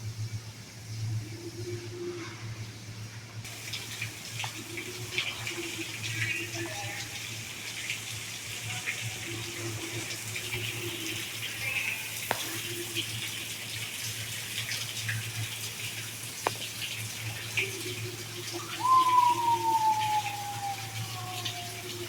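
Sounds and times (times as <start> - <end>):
running water: 3.4 - 22.0
short bird calls: 18.5 - 21.2.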